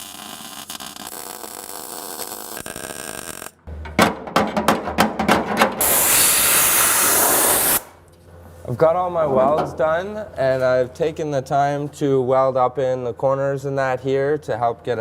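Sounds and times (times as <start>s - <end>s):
arc welding crackle: 0.0s - 3.6s, 5.8s - 7.9s.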